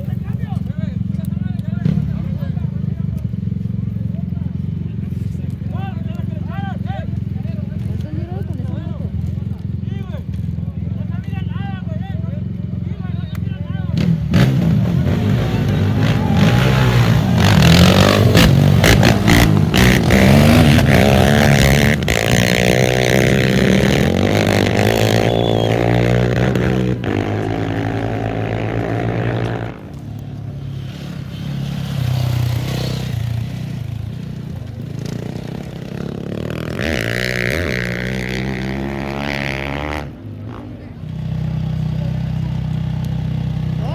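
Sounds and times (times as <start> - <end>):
racing engines revving: 13.3 - 43.9.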